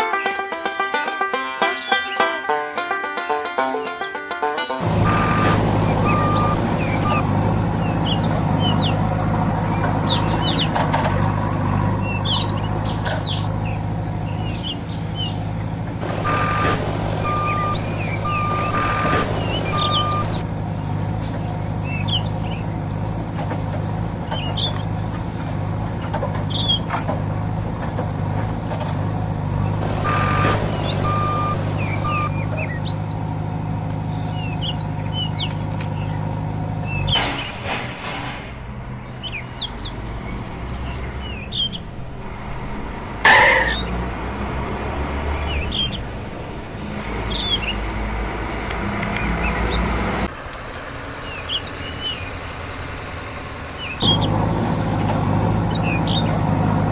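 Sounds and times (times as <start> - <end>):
birds chirping: 1.2 - 4.1, 4.8 - 56.9
reversing alarm beeping: 4.8 - 9.0, 16.1 - 20.5, 29.6 - 32.8
heavy vehicle engine running: 4.8 - 56.9.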